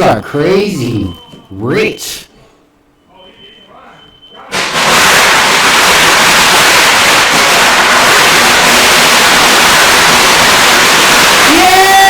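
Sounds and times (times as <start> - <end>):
loud rushing hiss: 4.5 - 11.4.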